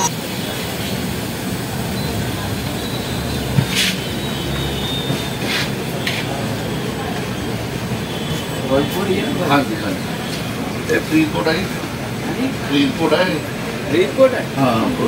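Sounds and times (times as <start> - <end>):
train wheels rumbling on rails: 3.5 - 8.7.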